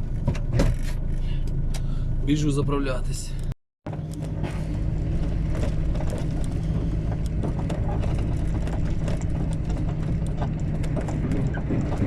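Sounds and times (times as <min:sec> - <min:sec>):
diesel truck engine in cab: 0:00.0 - 0:12.0
small rattles and ticks: 0:05.2 - 0:12.0.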